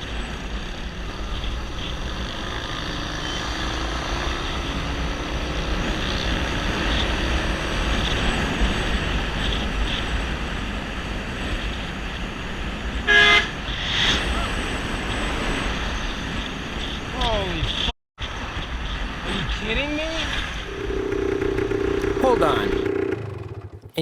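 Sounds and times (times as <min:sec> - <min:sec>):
motorcycle engine and road noise: 0:00.0 - 0:14.1, 0:20.3 - 0:24.0.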